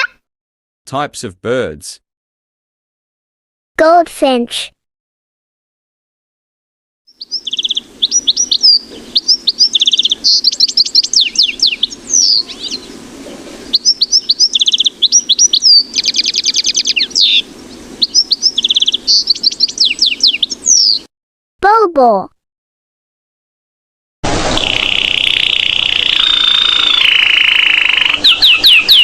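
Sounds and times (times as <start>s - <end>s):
goldfinch twittering song: 7.1s - 13.0s, 13.6s - 21.1s, 24.6s - 29.0s.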